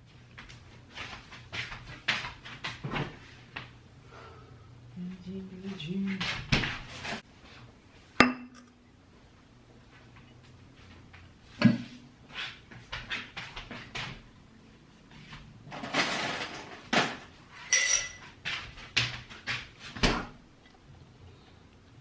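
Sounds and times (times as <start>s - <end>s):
ringing clink: 17.7s - 18.2s.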